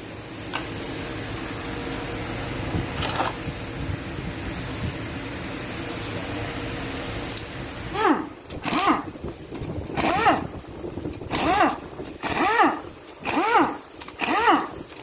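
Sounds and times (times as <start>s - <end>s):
machine hum and hiss: 0.0s - 15.0s.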